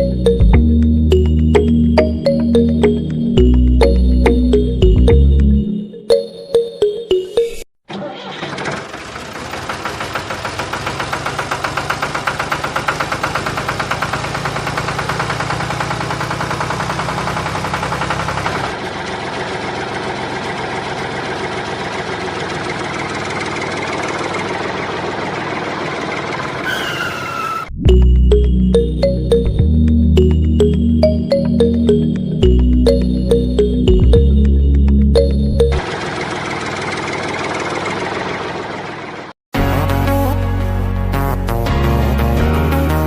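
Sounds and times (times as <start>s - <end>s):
model engine clattering: 7.9s - 26.6s.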